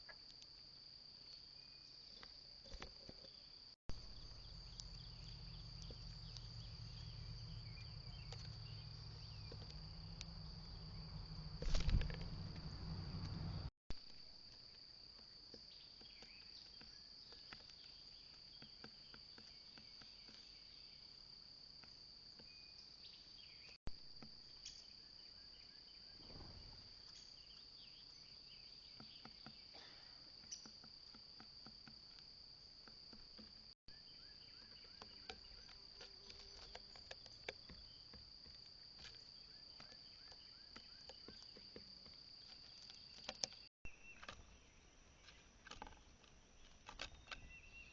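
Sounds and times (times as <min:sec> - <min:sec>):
high-pitched insect trill: 0:01.3 - 0:13.7.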